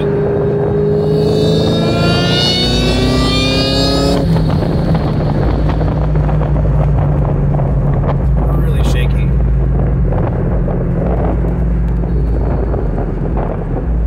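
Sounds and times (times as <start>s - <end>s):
car engine revving: 0.0s - 14.0s
low engine drone: 0.0s - 14.0s
supercharger whine: 0.0s - 14.0s.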